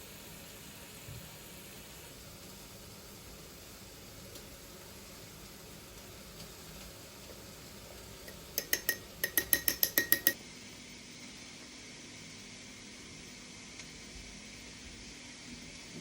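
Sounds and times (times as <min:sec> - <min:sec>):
metal utensil clinking on a dish: 0:08.3 - 0:10.4.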